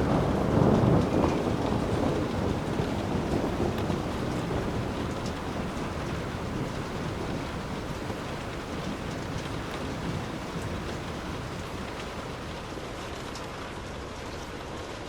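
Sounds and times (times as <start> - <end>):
distant thunder rumble: 0.0 - 12.8
steady rain falling: 0.0 - 15.0.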